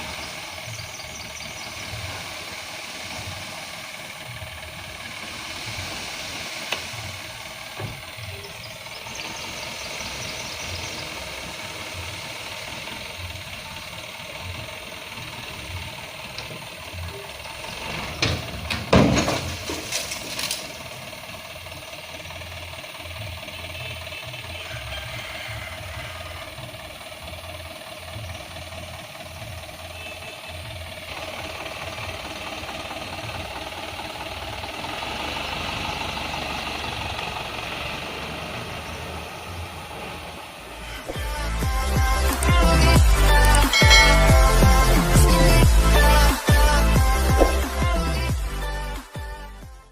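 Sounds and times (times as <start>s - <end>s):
diesel engine running: 0.0s - 49.9s
loud knocks and clatter: 17.8s - 20.7s.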